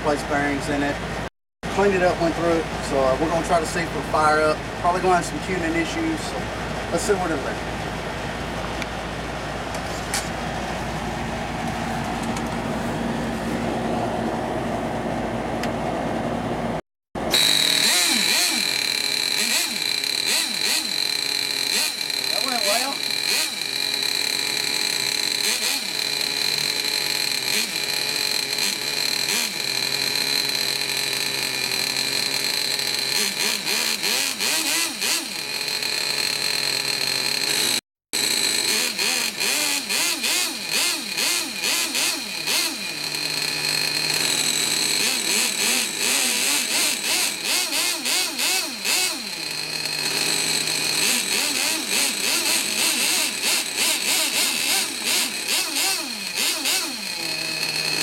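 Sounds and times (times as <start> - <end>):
nitro engines revving: 17.3 - 58.0.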